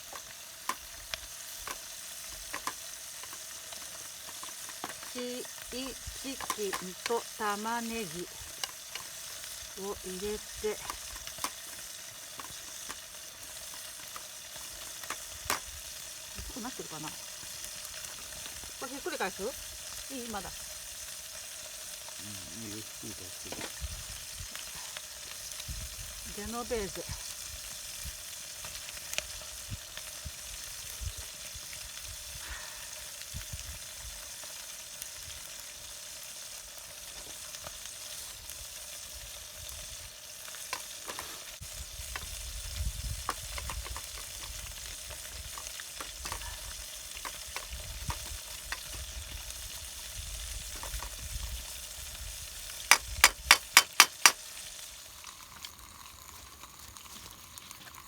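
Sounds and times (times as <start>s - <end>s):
food sizzling in a pan: 0.0s - 58.0s
small clicks and knocks: 2.5s - 5.2s, 43.3s - 46.5s, 52.9s - 54.4s.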